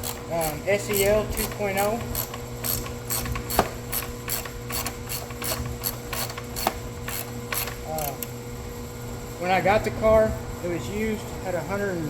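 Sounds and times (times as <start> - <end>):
rapid mechanical clicking: 0.0 - 8.3
constant hum: 0.0 - 12.0.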